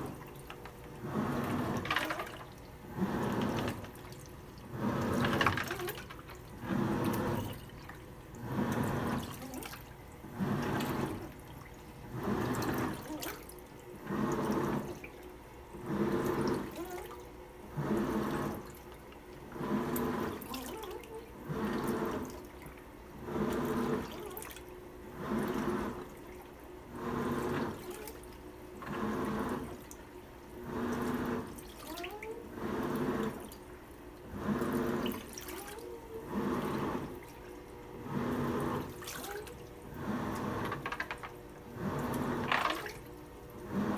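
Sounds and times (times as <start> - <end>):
washing machine water sloshing: 0.0 - 43.9.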